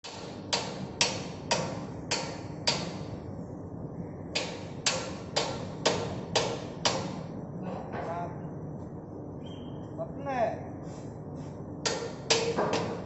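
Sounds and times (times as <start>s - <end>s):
hammer on metal: 0.0s - 3.1s, 4.4s - 7.3s, 11.8s - 13.0s.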